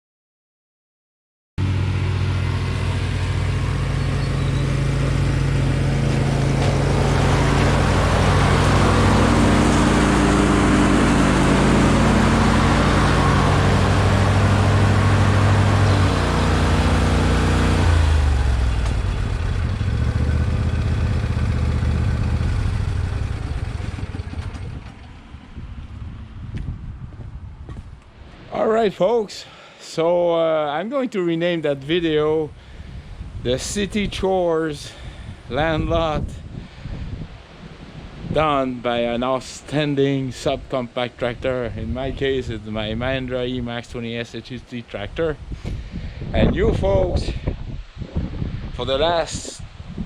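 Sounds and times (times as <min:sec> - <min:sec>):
small tractor engine running: 0:01.6 - 0:26.1.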